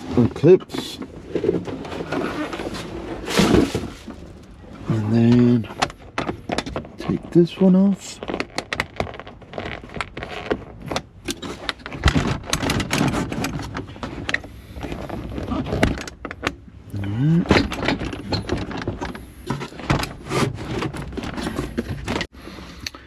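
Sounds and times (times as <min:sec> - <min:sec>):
plastic panels clicking and scraping: 0:00.0 - 0:16.7, 0:17.4 - 0:22.3.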